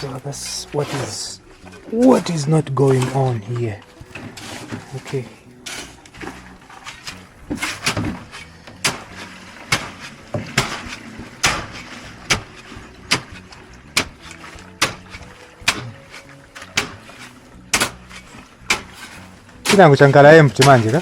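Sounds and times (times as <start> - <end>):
hammering strikes: 4.2 - 21.0.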